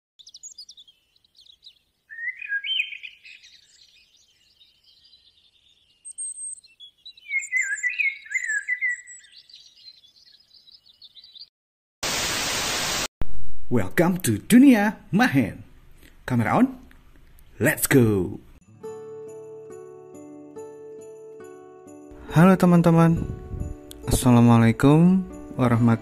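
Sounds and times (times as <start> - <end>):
faint high bird trills and chirps: 0.2 - 11.5
loud warbling birdsong: 0.2 - 11.5.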